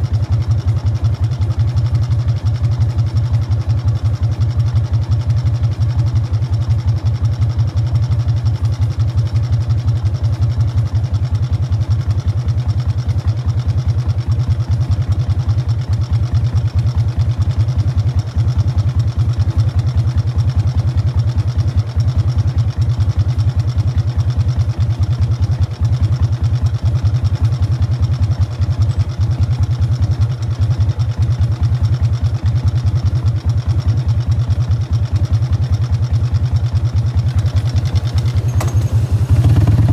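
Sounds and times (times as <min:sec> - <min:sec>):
motorcycle exhaust pulsing: 0:12.9 - 0:39.9.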